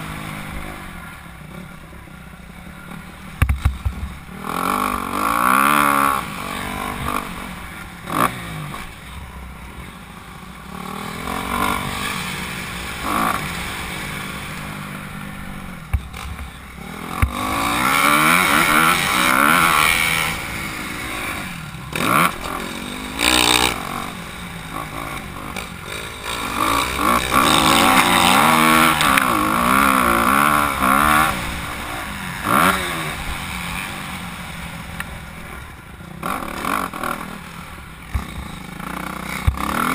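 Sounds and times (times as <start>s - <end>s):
motocross engine revving: 2.8s - 9.9s, 10.6s - 39.9s.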